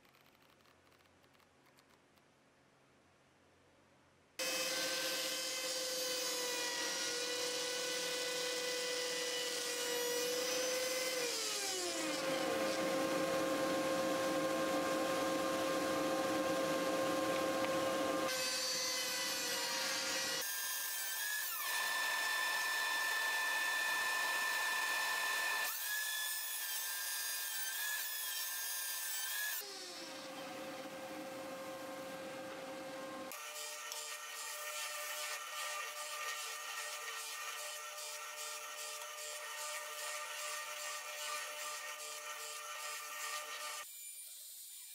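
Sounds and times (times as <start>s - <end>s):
power tool motor whine: 4.4s - 20.4s, 21.2s - 26.1s.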